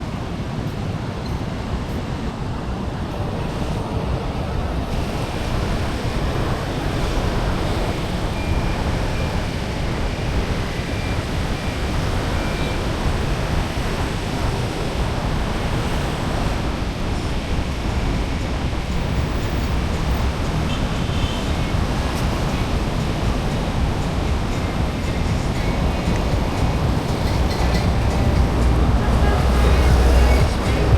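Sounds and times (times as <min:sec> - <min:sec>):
wind buffeting microphone: 0:00.0 - 0:30.9
background noise: 0:14.9 - 0:30.9.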